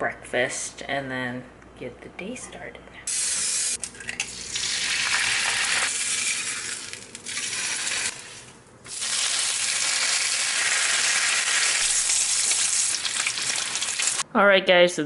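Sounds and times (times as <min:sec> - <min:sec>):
food sizzling in hot oil: 0:04.4 - 0:14.2.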